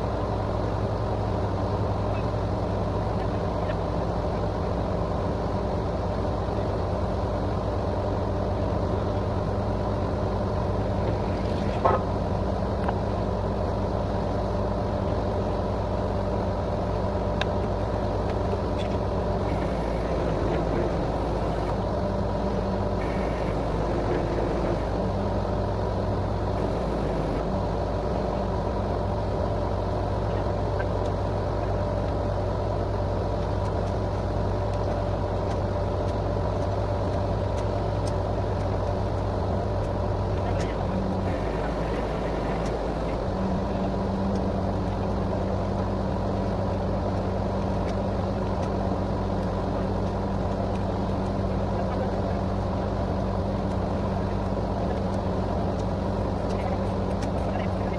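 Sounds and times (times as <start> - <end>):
drilling rig engine drone: 17.5 - 30.6, 38.0 - 57.9.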